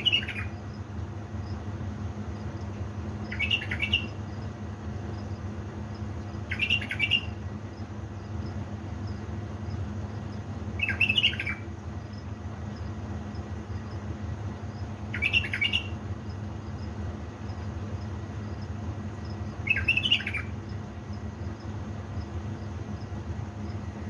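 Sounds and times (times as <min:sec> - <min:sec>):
bird singing fluty phrases: 0:00.0 - 0:00.9, 0:01.5 - 0:14.0, 0:14.6 - 0:16.9, 0:17.5 - 0:21.6
steady low hum: 0:00.0 - 0:24.0.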